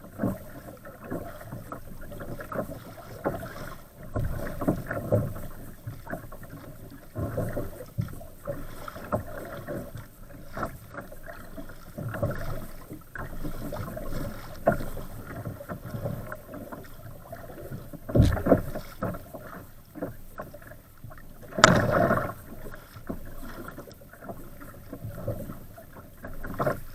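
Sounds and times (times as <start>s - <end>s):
water splashing against kayak hull: 0.0s - 26.9s
splashing knocks: 18.1s - 19.1s, 21.6s - 22.3s.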